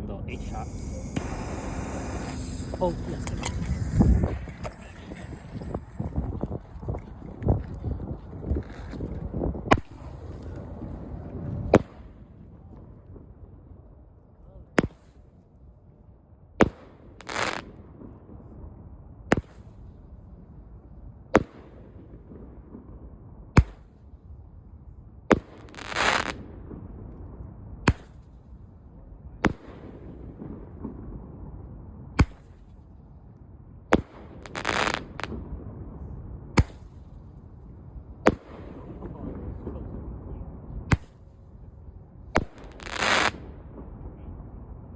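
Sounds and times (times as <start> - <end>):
hissing burst: 0.3 - 6.2
roman candle firing: 0.3 - 6.5, 34.0 - 35.4.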